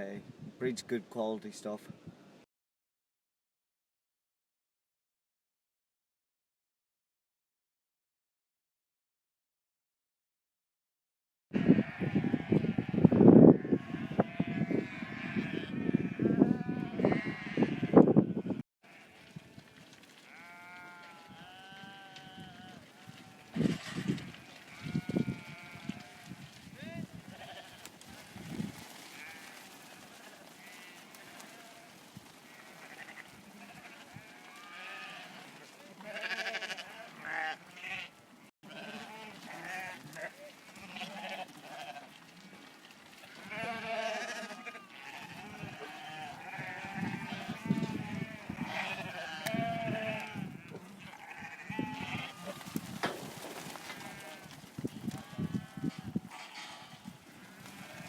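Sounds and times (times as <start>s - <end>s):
sheep bleating: 11.6s - 52.8s, 53.8s - 58.0s.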